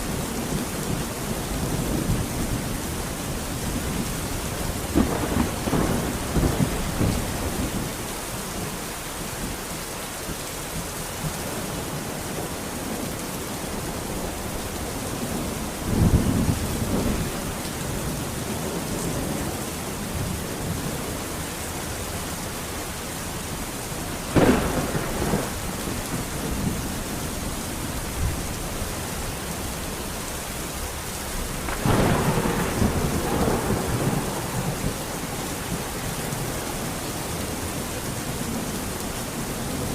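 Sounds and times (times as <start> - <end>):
thunder rumbling: 0.0 - 8.8, 13.7 - 39.9
heavy rain: 0.0 - 39.9
sharp thunder clap: 24.4 - 26.7, 31.5 - 35.0.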